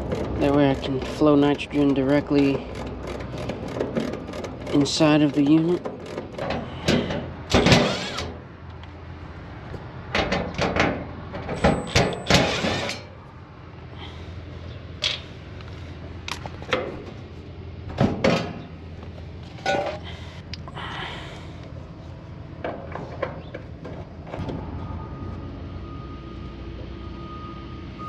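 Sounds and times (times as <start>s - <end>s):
tools and fittings clattering: 10.2s - 13.1s, 19.6s - 20.1s.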